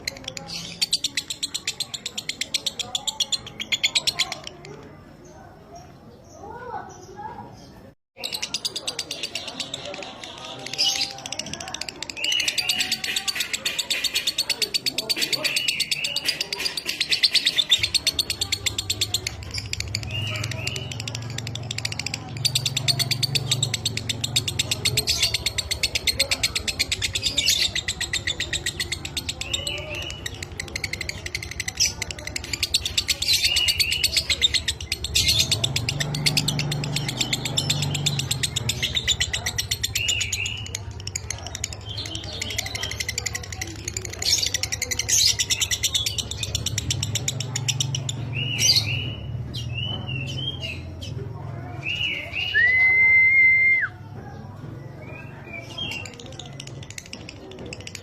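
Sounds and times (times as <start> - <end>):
lovebird chattering trill: 8.2 - 51.1.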